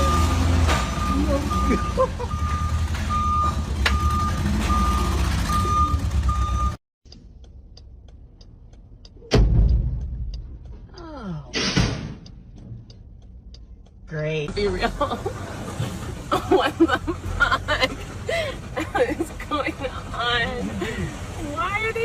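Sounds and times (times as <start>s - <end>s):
truck reversing alarm beeping: 0.0s - 10.8s
truck engine running: 0.0s - 11.0s
faint ticking: 7.1s - 11.5s, 12.2s - 14.4s
heavy bang: 9.3s - 10.4s, 11.5s - 12.3s.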